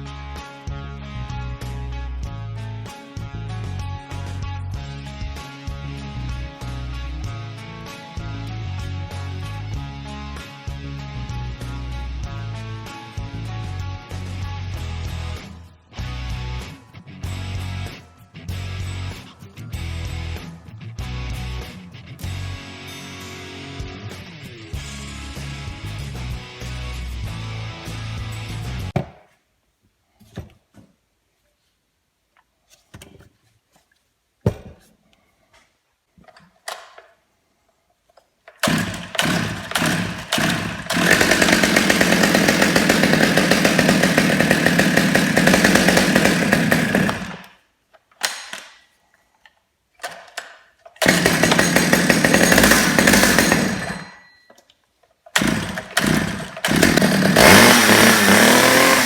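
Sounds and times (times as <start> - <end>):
chainsaw running: 38.6 - 47.6, 51.0 - 54.3, 55.4 - 59.0.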